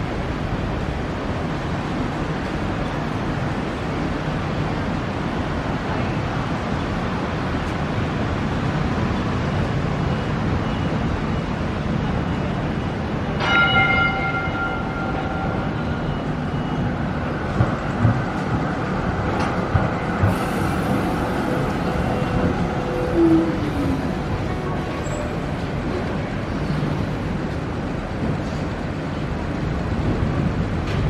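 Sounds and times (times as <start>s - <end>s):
city traffic rumble: 0.0s - 31.0s
bell-like ring: 13.4s - 16.8s.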